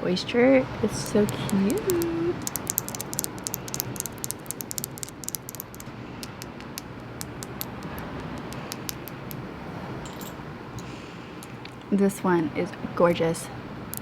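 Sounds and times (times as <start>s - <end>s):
tapping on a seashell: 1.0s - 9.4s.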